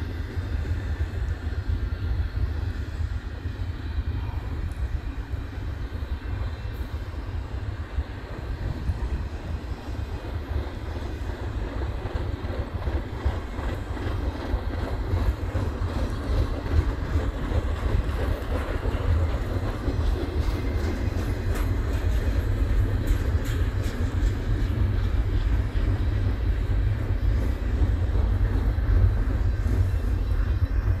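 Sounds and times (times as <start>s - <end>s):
steel wheels rumbling on rail: 0.0s - 31.0s.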